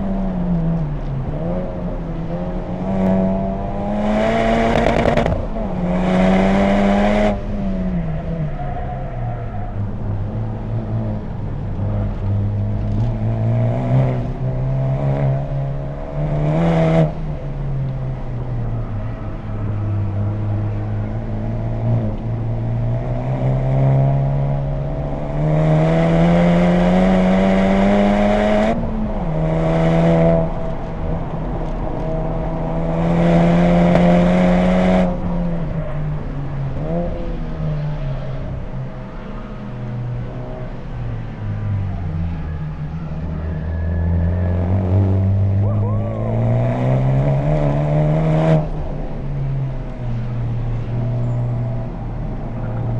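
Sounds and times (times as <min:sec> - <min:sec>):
car engine revving at full throttle: 0:00.0 - 0:08.3, 0:19.7 - 0:41.4, 0:42.9 - 0:52.9.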